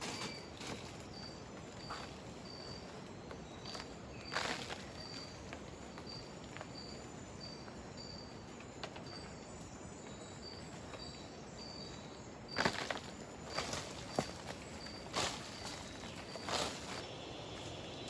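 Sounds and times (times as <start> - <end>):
rustling or crunching: 0.0 - 1.2, 3.7 - 5.2, 12.6 - 17.2
steady background hiss: 0.0 - 18.0.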